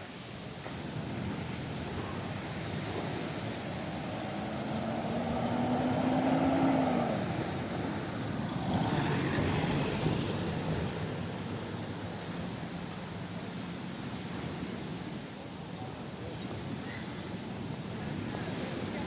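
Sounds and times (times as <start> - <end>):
motor vehicle passing: 2.5 - 12.8.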